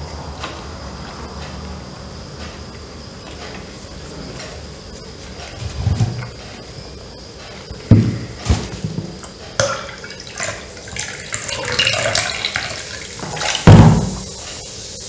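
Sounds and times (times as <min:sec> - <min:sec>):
low thumps: 0:07.7 - 0:09.2.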